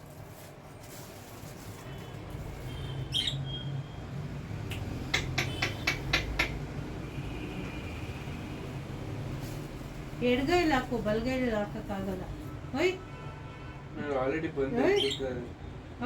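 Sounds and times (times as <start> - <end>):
lovebird squawk: 3.1 - 3.6.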